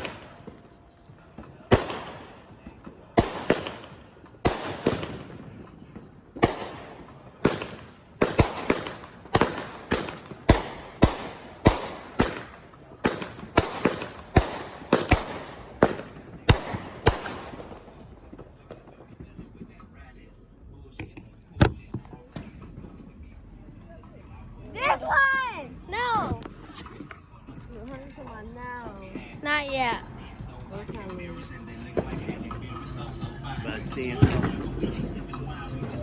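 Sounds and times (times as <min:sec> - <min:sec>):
fireworks bangs with echo: 0:00.0 - 0:20.3, 0:29.1 - 0:36.0.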